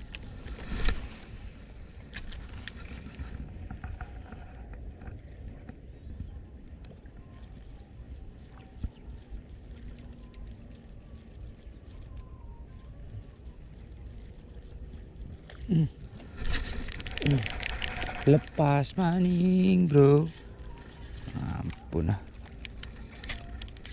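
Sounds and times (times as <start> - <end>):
insects buzzing: 0.0 - 23.9
low outdoor rumble: 0.0 - 23.9.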